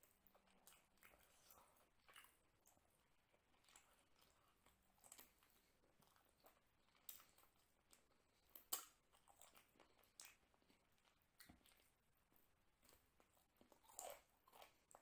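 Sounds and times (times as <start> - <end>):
mouth clicks chewing food: 0.0 - 12.1.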